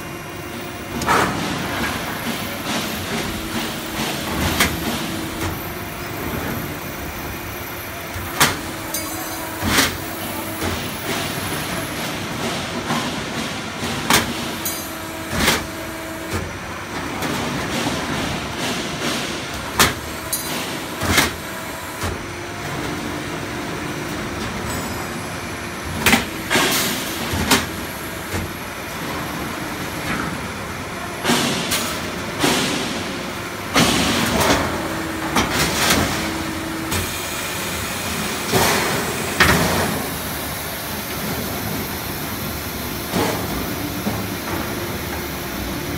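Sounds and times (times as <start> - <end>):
steady machine noise: 0.0 - 23.9.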